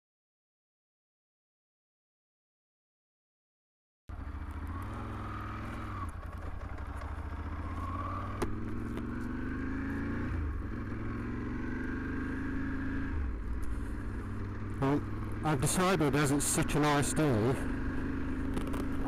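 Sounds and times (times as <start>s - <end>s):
motorcycle engine accelerating: 4.1s - 19.0s.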